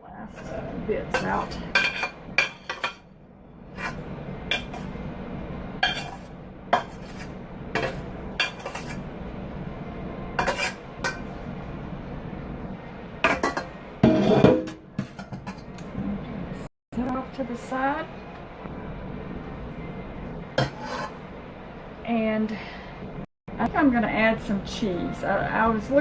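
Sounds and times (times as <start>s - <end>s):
metal spoon scraping a pan: 0.3s - 3.0s, 3.7s - 5.0s, 5.8s - 9.1s, 10.4s - 11.3s, 13.2s - 15.7s, 20.6s - 21.2s.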